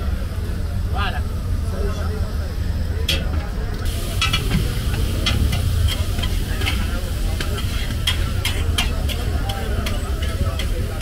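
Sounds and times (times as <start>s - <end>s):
food sizzling in a pan: 3.9s - 11.0s
metal utensil clinking and scraping: 5.2s - 11.0s.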